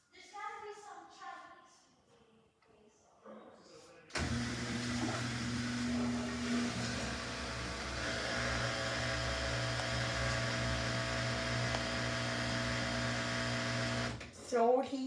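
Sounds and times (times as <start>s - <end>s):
washing machine motor humming: 4.2s - 14.4s.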